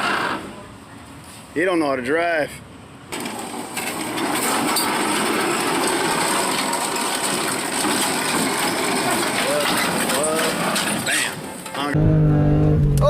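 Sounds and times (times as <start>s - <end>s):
road noise: 0.0s - 13.0s
vehicle engine: 2.5s - 13.0s.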